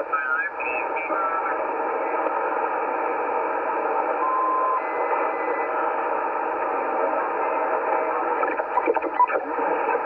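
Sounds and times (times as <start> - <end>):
radio receiver hiss: 5.1 - 10.0.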